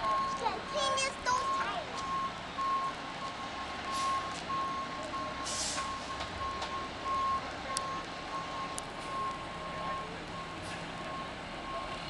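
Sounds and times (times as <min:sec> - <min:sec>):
backup alarm beeping: 0:00.0 - 0:12.0
truck engine running low: 0:00.0 - 0:12.0
short air hiss: 0:05.5 - 0:05.9.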